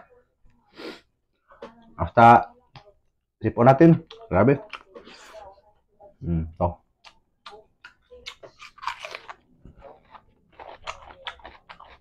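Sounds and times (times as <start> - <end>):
man chewing food: 7.0 - 12.0.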